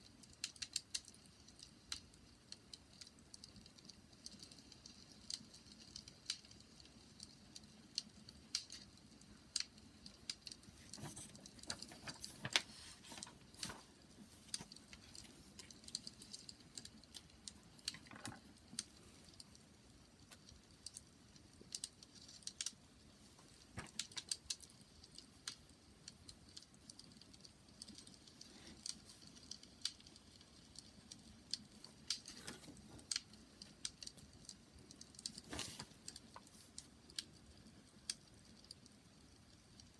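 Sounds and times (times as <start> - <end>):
bonfire crackling and popping: 0.0 - 39.9.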